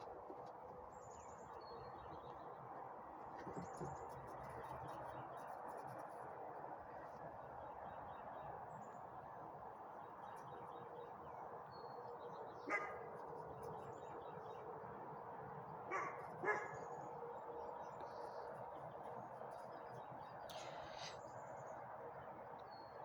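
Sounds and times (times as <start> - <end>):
puppy barking: 12.7 - 13.1, 15.9 - 16.8.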